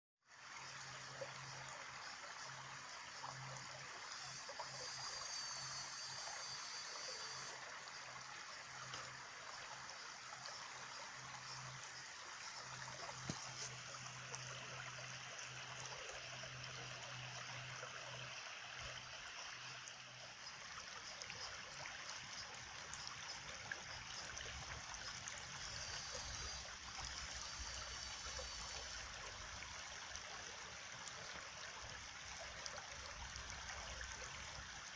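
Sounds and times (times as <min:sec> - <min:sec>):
stream trickling over stones: 0:00.3 - 0:34.9.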